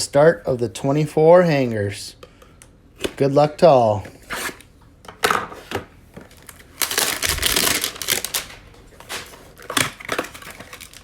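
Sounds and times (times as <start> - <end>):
packaging crinkling: 6.2 - 11.0
cardboard tearing: 6.8 - 11.0.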